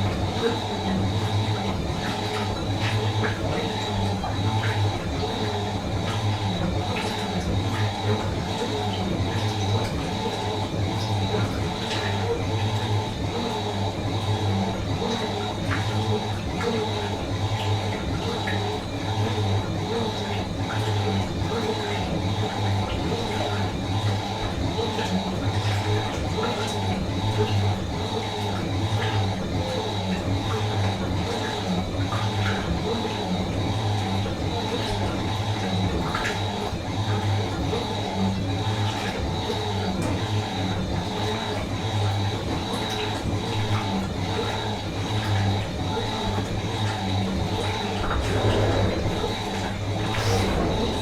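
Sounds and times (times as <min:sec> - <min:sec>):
washing machine humming: 0:00.0 - 0:51.0
steady high whine: 0:47.8 - 0:51.0.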